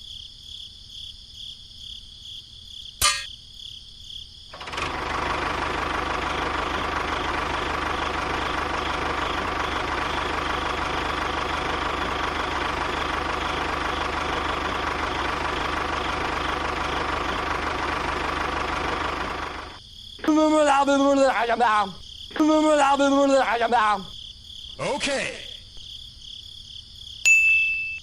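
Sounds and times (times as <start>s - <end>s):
mini tractor engine running: 4.6s - 19.8s.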